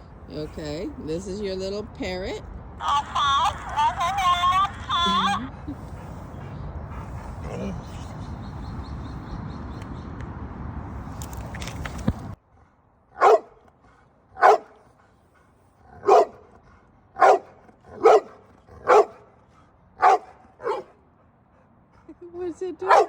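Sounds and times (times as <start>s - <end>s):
dog barking: 13.2s - 13.6s, 14.4s - 14.8s, 16.0s - 16.5s, 17.2s - 19.2s, 20.0s - 21.0s.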